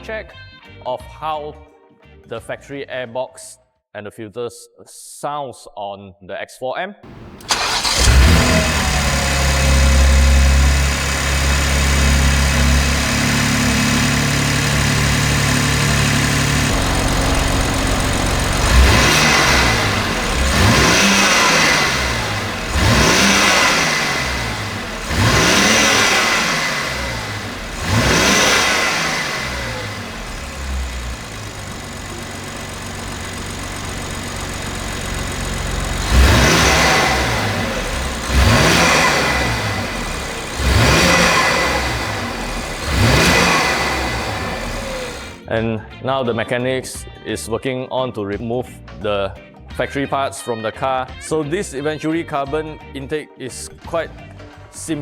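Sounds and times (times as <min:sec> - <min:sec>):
car engine idling and revving: 0:07.0 - 0:45.4.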